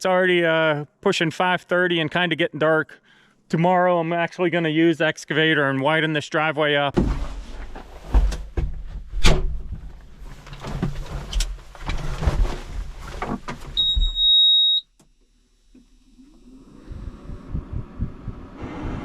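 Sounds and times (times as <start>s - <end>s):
clunks and knocks: 6.9s - 14.2s
low rumble: 15.9s - 19.0s.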